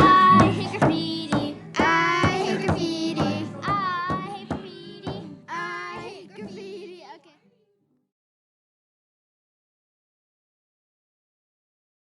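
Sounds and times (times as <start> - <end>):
children's voices singing and speaking: 0.0 - 7.8.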